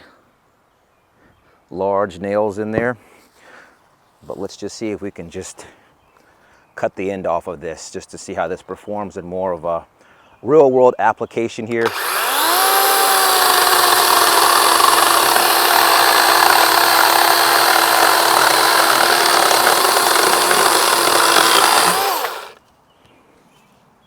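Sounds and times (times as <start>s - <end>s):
chainsaw cutting wood: 11.8s - 22.6s
motor winding down: 11.8s - 22.6s.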